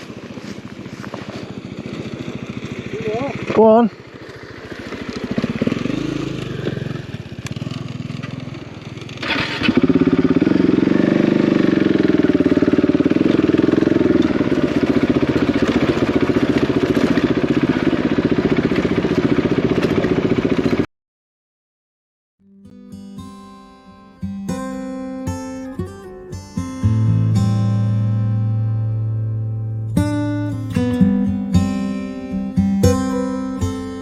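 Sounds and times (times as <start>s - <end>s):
motorcycle engine revving: 0.0s - 20.9s, 29.7s - 34.0s.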